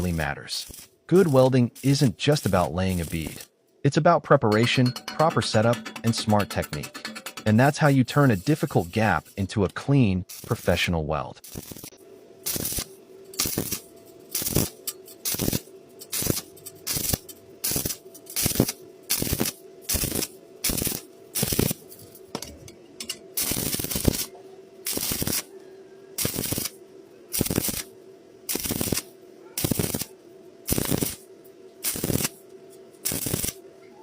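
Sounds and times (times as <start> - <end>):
welding arc crackling: 0.0 - 3.5, 4.5 - 22.3, 23.0 - 25.5, 26.2 - 33.6
steady hum: 0.0 - 33.8.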